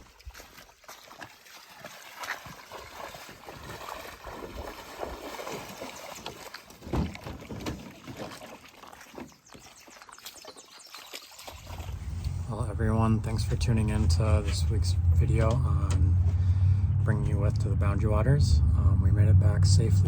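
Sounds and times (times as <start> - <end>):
paddle splashing in water: 0.0 - 12.5.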